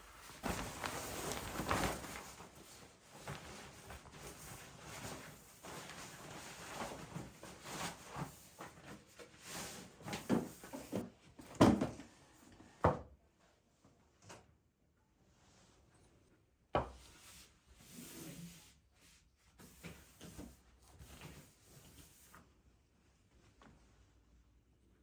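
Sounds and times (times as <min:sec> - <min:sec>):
soft rustling: 0:00.0 - 0:08.3.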